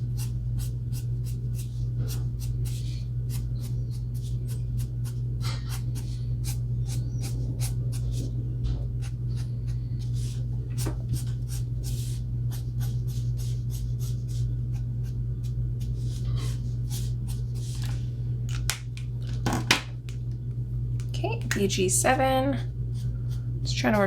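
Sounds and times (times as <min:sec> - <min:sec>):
steady low hum: 0:00.0 - 0:24.0
marker scratching on paper: 0:10.0 - 0:14.8.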